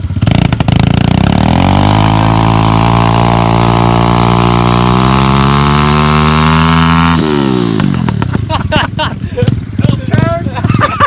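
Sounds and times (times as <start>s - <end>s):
pit bike engine accelerating: 0.0s - 11.0s.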